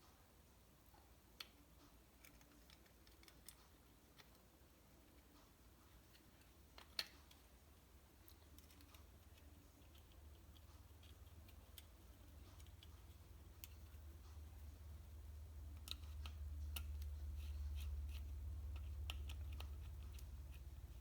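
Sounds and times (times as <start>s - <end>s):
faint low hum: 0.0s - 21.0s
small parts and tools clicking: 1.4s - 5.4s, 8.2s - 14.7s, 15.7s - 21.0s.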